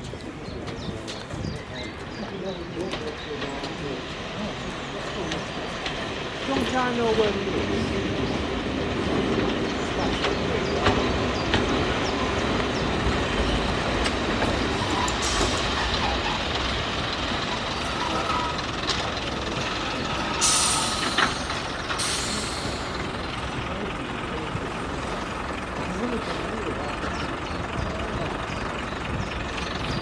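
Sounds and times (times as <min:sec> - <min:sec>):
train rumbling: 0:00.0 - 0:30.0.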